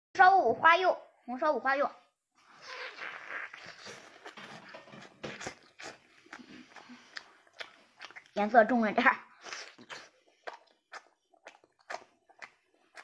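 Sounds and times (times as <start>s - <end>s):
child chewing wetly: 2.4s - 8.6s, 9.3s - 13.0s.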